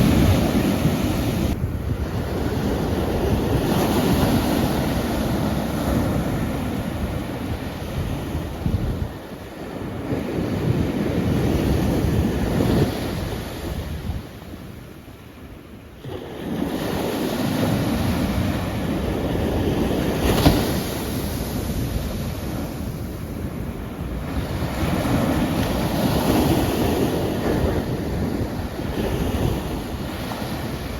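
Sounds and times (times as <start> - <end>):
ocean waves breaking: 0.0 - 13.8, 16.0 - 30.9.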